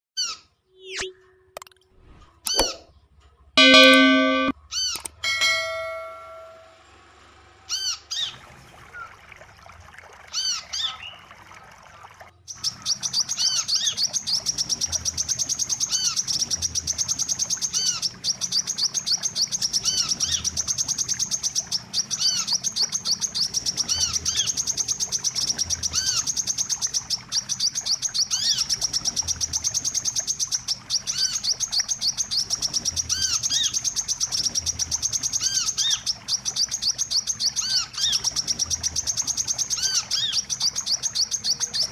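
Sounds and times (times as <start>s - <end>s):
looping bird chirps: 0.2s - 1.5s, 3.6s - 6.6s
high chattering bird trill: 3.6s - 4.5s, 5.2s - 6.7s.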